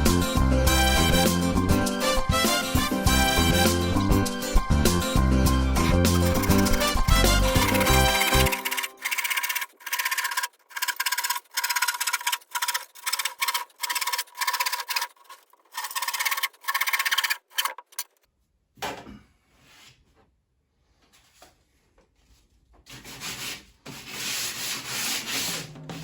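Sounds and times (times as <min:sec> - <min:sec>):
hand saw cutting wood: 0:05.8 - 0:18.2
wood rubbing: 0:05.8 - 0:18.2.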